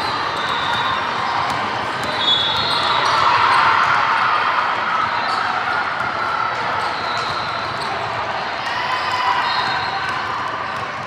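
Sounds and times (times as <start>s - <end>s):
basketball bouncing: 0.0s - 2.8s
sneaker squeaks: 0.0s - 4.0s, 6.6s - 8.2s, 9.0s - 10.3s
hubbub of voices in a gym: 0.0s - 11.0s.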